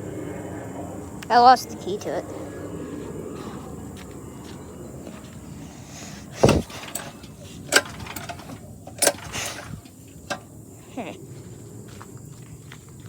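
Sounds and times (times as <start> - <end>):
steady low rumble: 0.0 - 12.6
sharp knocks: 6.4 - 9.7.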